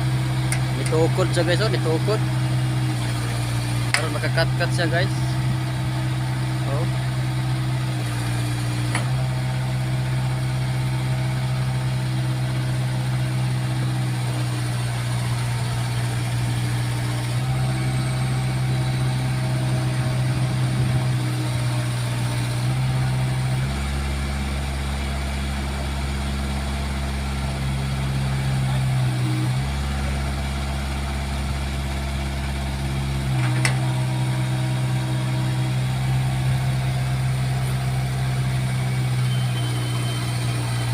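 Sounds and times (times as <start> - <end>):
backhoe diesel engine running: 0.0 - 40.9.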